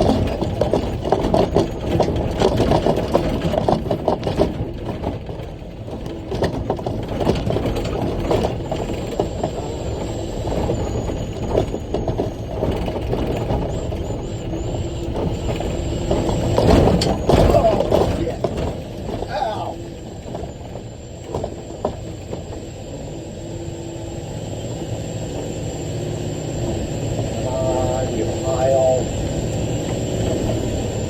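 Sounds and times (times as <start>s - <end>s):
cab rattles and knocks: 0.0s - 9.3s, 15.1s - 19.4s
diesel engine running: 0.0s - 31.0s
faint high whine: 19.2s - 31.0s.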